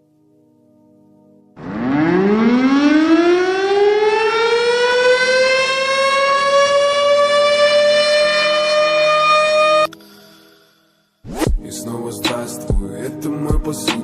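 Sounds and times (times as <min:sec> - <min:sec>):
siren wailing: 0:01.6 - 0:10.0.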